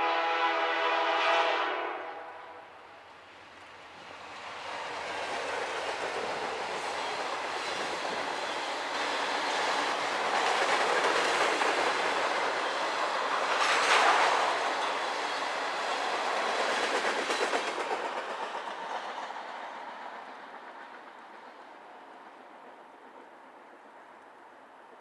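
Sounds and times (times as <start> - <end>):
freight train wheels clacking: 4.3 - 23.7.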